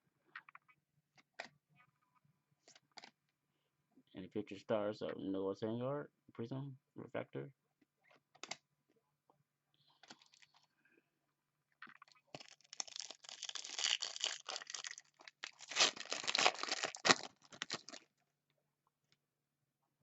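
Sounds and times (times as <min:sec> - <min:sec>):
wrapper crinkling and tearing: 0:12.3 - 0:18.1.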